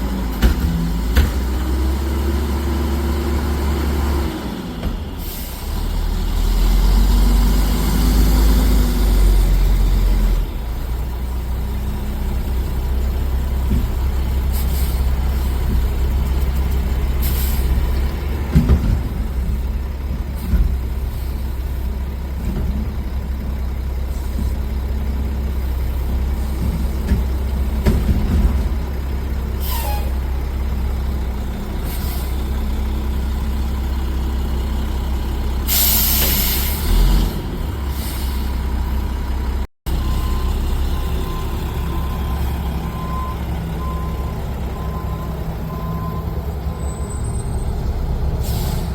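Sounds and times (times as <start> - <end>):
garbage truck diesel drone: 0.0 - 48.9
clunks: 0.2 - 1.7, 15.5 - 21.1, 25.8 - 29.4.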